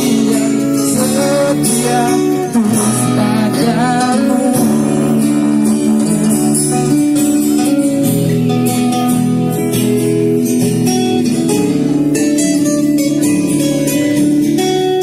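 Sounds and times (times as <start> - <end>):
person singing: 0.0 - 7.1
acoustic guitar strummed: 0.0 - 15.0.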